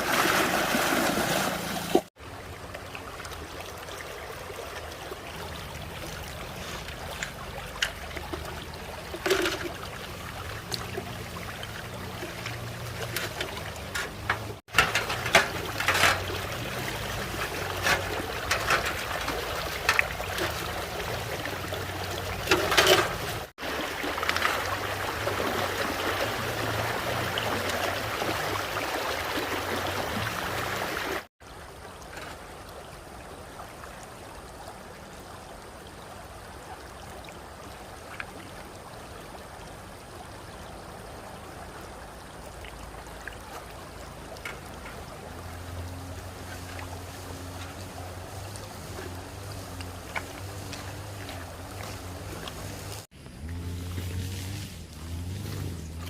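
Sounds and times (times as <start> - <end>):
stream water running: 0.0 - 56.0
short knocks and clatters: 12.4 - 16.5.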